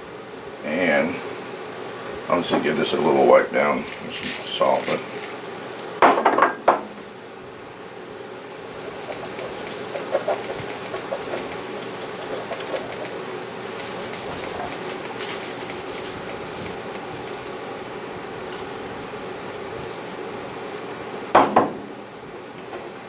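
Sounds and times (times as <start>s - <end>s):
cloth scrubbing metal parts: 2.6s - 6.0s, 8.4s - 20.2s.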